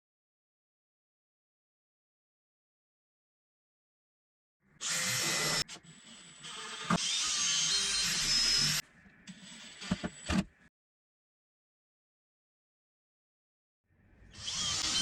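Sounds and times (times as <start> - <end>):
power tool whirring on wood: 4.8 - 10.5, 14.3 - 15.0.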